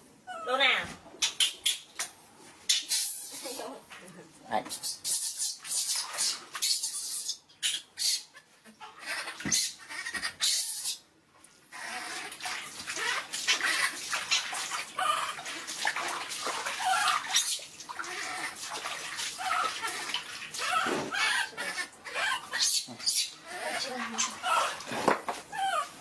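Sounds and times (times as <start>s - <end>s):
water splashing and sloshing: 11.3s - 23.1s.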